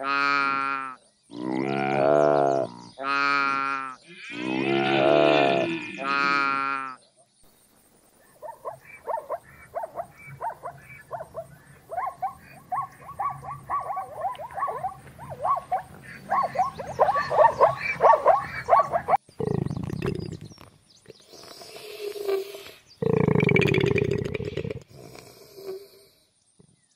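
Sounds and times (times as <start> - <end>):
deer roaring: 4.1 - 6.5, 9.8 - 20.4
zebra barking yelps: 8.3 - 19.3.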